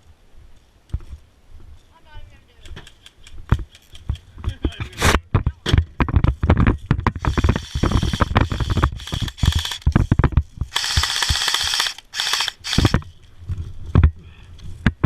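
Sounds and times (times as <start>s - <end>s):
gun handling clicks and clatter: 2.6s - 5.1s, 5.7s - 13.4s
mechanical whir: 7.2s - 13.1s.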